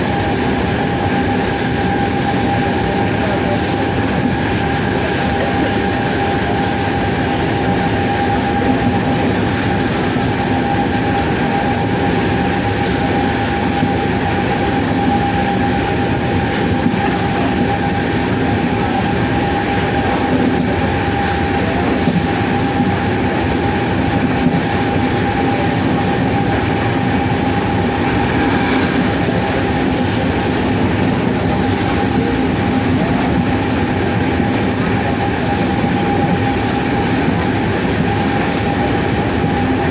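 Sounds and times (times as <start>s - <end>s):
rumble of moving train: 0.0s - 39.9s
traction motors whining: 25.4s - 31.8s.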